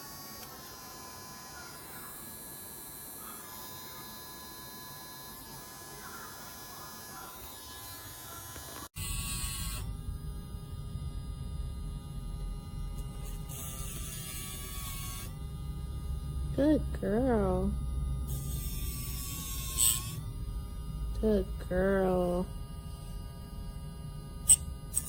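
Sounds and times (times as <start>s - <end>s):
nail grinder motor whining: 0.0s - 9.9s, 13.0s - 15.3s, 18.3s - 20.2s.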